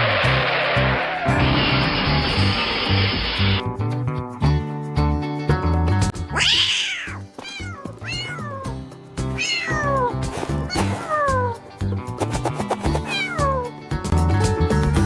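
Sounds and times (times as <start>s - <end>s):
background music: 0.1s - 15.0s
cat meowing: 6.3s - 11.6s, 13.0s - 13.8s.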